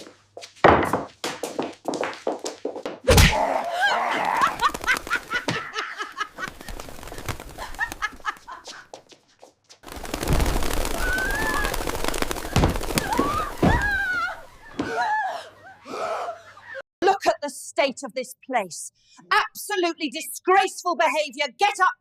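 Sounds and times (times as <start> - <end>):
quick clicks and flapping: 4.4 - 5.4, 6.4 - 8.5, 9.8 - 14.0
rising and falling bird calls: 10.8 - 14.8.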